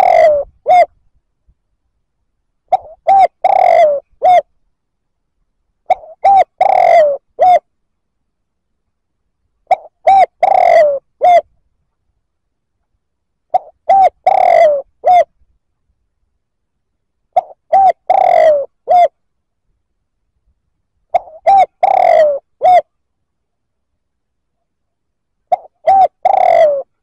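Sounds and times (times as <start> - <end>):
dove cooing: 0.0 - 1.0, 2.7 - 4.5, 5.9 - 7.7, 9.7 - 11.5, 13.5 - 15.3, 17.3 - 19.2, 21.1 - 22.9, 25.5 - 27.0.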